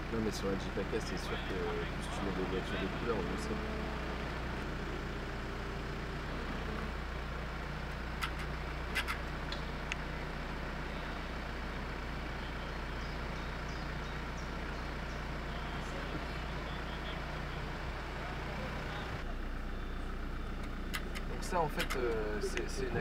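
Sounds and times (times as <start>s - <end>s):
off-road engines at low revs: 0.0s - 23.0s
sharp clicks: 8.2s - 10.0s, 20.6s - 22.1s.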